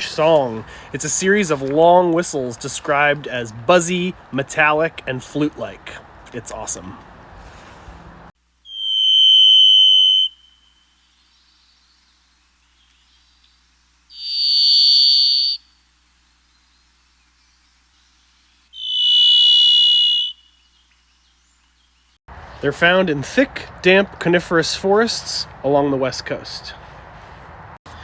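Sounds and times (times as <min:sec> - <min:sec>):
thrush whistled song: 0:08.6 - 0:15.8, 0:16.6 - 0:22.1.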